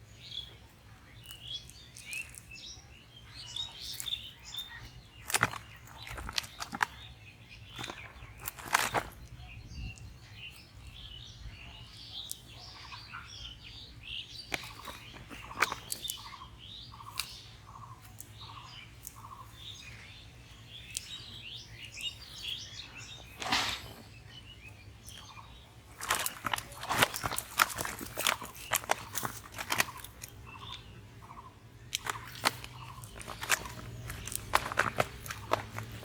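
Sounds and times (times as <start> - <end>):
birds chirping: 0.0 - 36.0
low bird calls: 0.0 - 36.0
rustling: 7.7 - 9.4, 21.8 - 24.3, 25.0 - 30.8, 31.9 - 36.0
sharp clicks: 26.0 - 30.8, 31.9 - 36.0.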